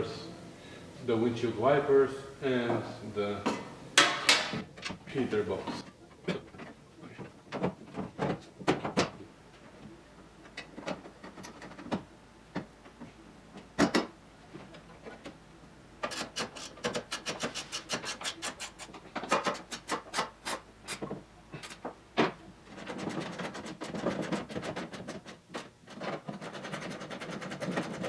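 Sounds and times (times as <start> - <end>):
rubbing of parts: 10.5 - 13.9, 16.0 - 28.0.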